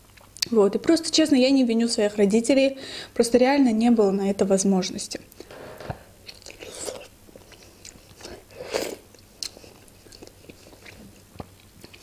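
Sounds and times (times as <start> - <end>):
person chewing food: 5.4 - 12.0
small mouth clicks: 6.2 - 12.0.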